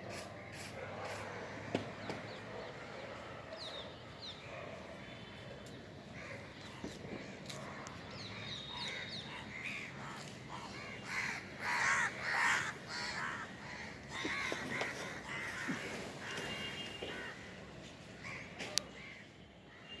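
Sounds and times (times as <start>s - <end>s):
crows cawing: 8.8s - 17.5s.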